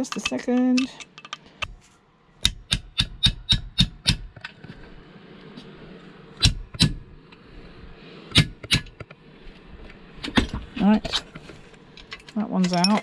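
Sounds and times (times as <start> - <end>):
hand tool tapping on metal: 2.4 - 4.2.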